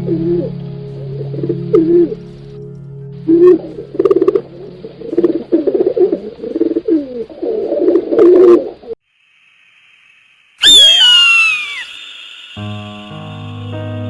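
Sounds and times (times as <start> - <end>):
pigeons cooing: 3.3 - 9.0
loud falling cry: 10.6 - 12.9.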